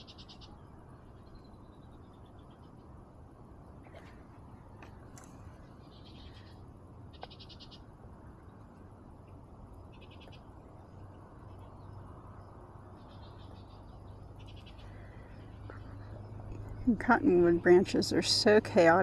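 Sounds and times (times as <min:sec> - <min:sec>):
small animal trills: 0:00.0 - 0:00.7, 0:05.8 - 0:07.8, 0:13.0 - 0:16.4
faint outdoor background: 0:00.0 - 0:19.0.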